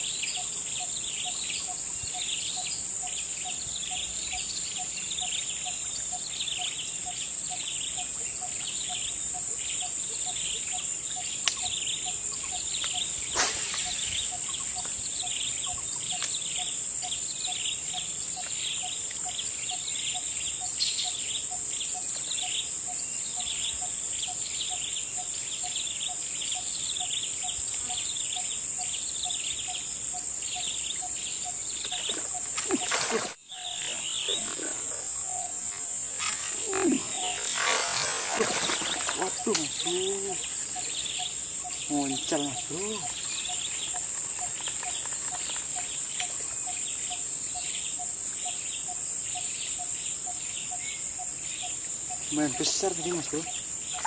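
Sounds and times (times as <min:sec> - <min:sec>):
bird or insect chirps: 0:00.0 - 0:54.0
high insect drone: 0:00.0 - 0:54.0
faint pulsing call: 0:31.4 - 0:43.6.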